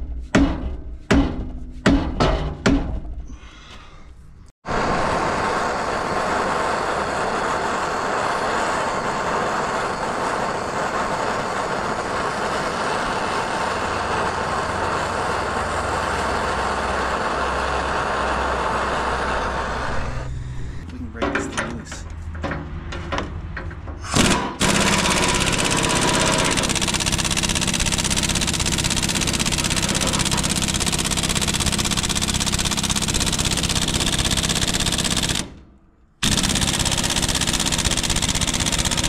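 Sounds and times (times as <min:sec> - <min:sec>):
loud steady rushing noise: 0:04.7 - 0:20.8.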